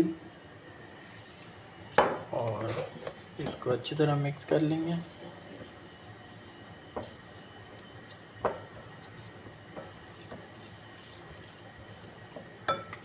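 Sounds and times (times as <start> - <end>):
spoon stirring wet marinade: 5.0 - 13.0
spoon clinking against bowl: 12.7 - 13.0.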